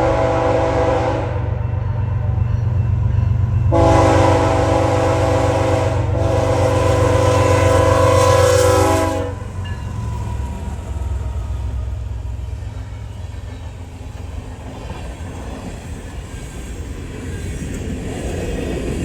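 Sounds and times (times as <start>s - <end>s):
locomotive air horn: 0.0s - 1.6s, 3.7s - 9.7s
train rumbling past: 0.0s - 19.0s.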